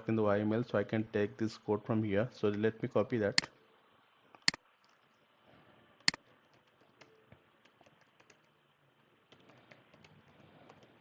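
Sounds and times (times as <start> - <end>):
computer mouse click: 6.0 - 8.5.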